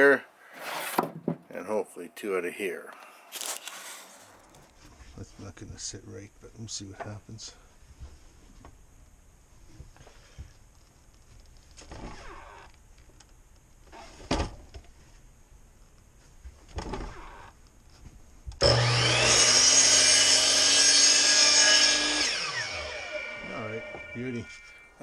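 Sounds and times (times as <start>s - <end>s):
wood knocking: 0.7s - 1.6s
power saw cutting wood: 3.0s - 4.7s, 18.6s - 24.8s.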